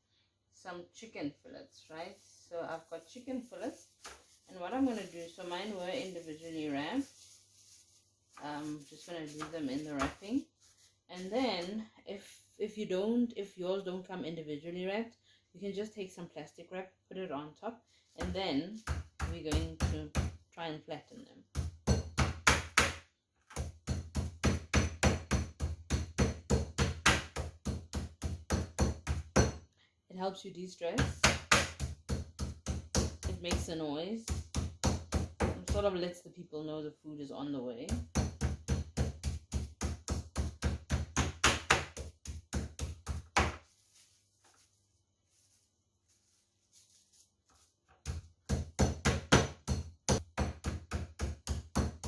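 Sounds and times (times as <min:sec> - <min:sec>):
meat being pounded: 0:18.8 - 0:20.4, 0:21.5 - 0:29.6, 0:31.0 - 0:33.7, 0:34.3 - 0:35.8, 0:37.9 - 0:43.6, 0:48.0 - 0:52.0.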